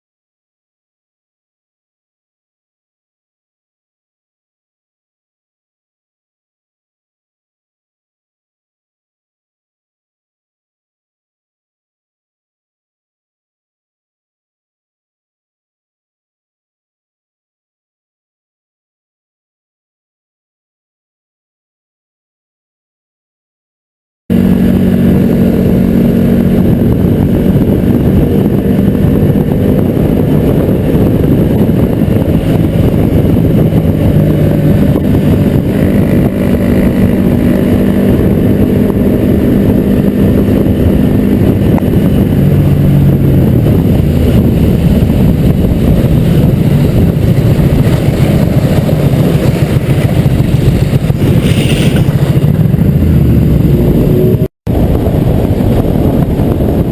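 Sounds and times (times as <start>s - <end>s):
vehicle engine and road noise: 24.3s - 56.9s.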